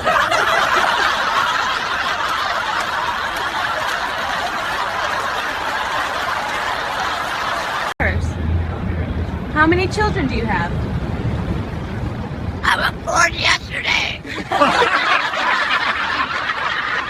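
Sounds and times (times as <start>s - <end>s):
people laughing: 0.0s - 7.9s, 14.2s - 17.0s.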